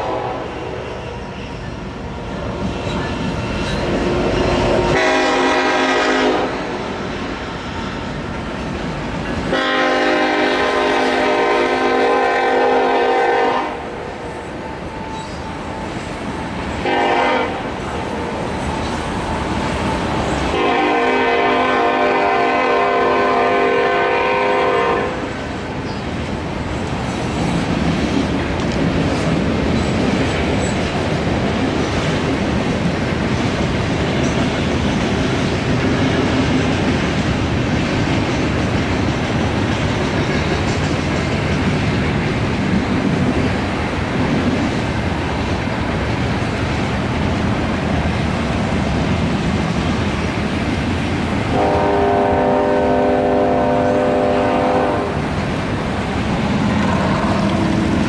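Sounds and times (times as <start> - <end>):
train wheels clattering on rails: 2.4 - 13.2, 25.2 - 58.0.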